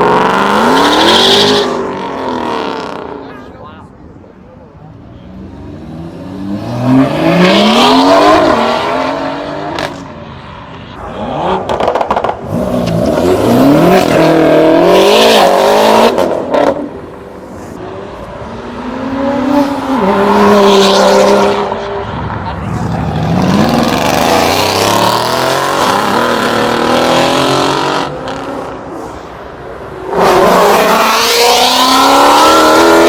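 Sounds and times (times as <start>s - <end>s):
car engines revving: 0.0s - 33.0s.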